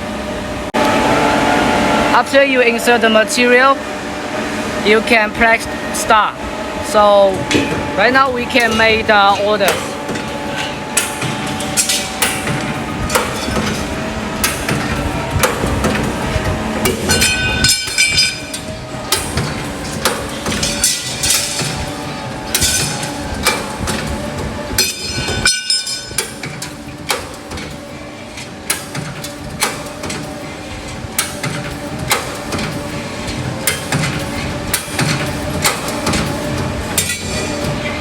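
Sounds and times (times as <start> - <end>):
punching machine hum: 0.0 - 38.0
high metallic ringing: 17.0 - 18.6, 24.8 - 26.2.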